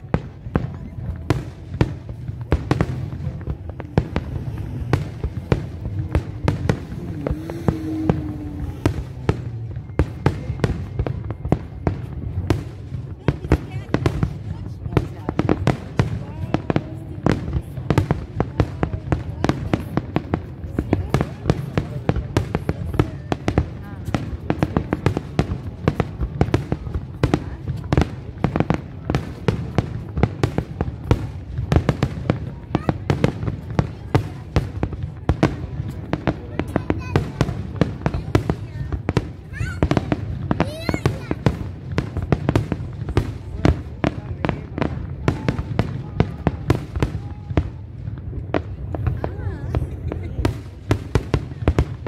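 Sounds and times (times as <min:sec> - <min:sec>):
low rumble: 0:00.0 - 0:18.4
constant low rumble: 0:00.0 - 0:52.0
firework bangs: 0:00.0 - 0:52.0.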